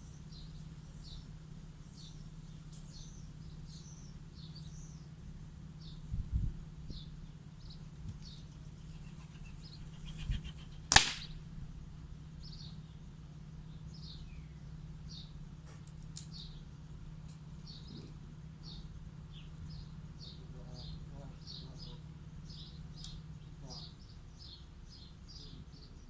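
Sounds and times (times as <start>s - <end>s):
small bird chirping: 0.0s - 11.4s, 16.0s - 26.0s
air rifle shot: 10.9s - 11.5s.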